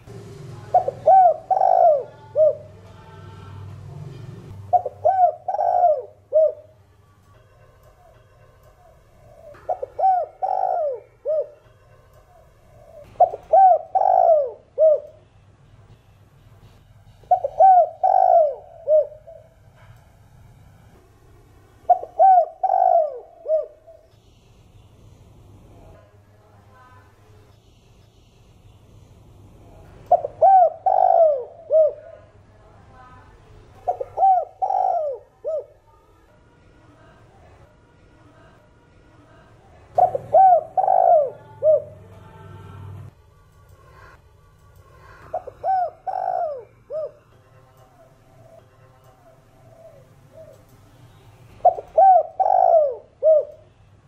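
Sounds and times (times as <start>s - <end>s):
dove cooing: 0.0s - 6.8s, 7.9s - 15.2s, 17.3s - 19.6s, 21.8s - 24.1s, 30.1s - 32.3s, 33.8s - 36.0s, 39.9s - 43.1s, 45.0s - 53.7s.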